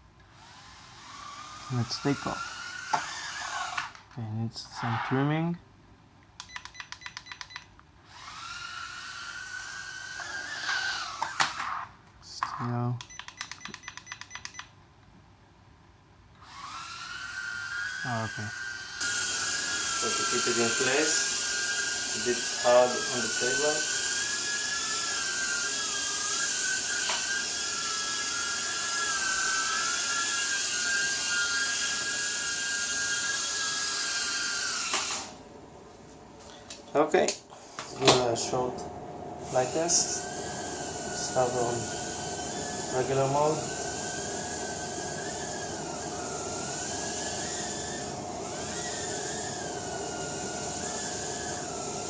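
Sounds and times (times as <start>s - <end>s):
quadcopter propellers whining: 0.4s - 4.0s, 8.1s - 11.8s, 16.5s - 35.4s, 37.6s - 52.0s.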